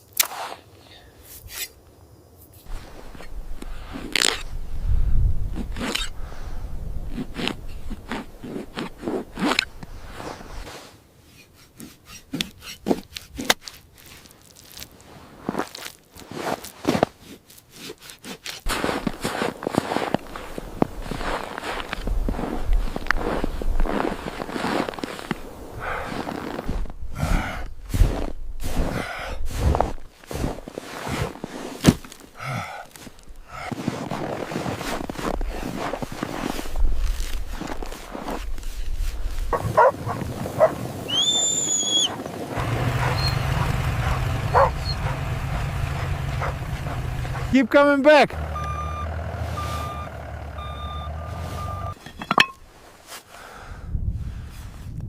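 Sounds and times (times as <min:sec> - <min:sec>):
scraping and knocking strokes: 0:07.1 - 0:14.3
person breathing hard: 0:25.8 - 0:26.4, 0:27.1 - 0:28.2, 0:28.8 - 0:29.9, 0:32.3 - 0:33.8, 0:53.3 - 0:54.0.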